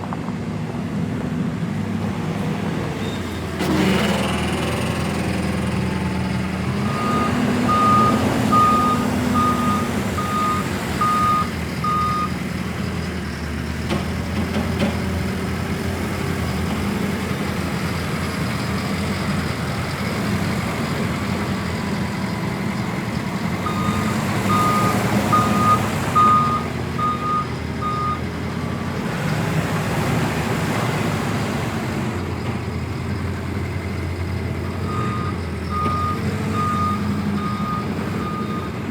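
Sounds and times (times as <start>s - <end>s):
diesel engine running: 0.0s - 38.9s
reversing alarm beeping: 6.8s - 12.4s, 23.6s - 28.2s, 34.8s - 38.8s.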